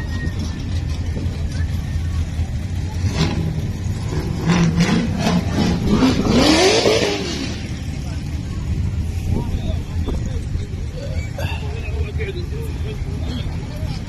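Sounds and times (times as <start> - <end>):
car engine revving: 0.4 - 10.8.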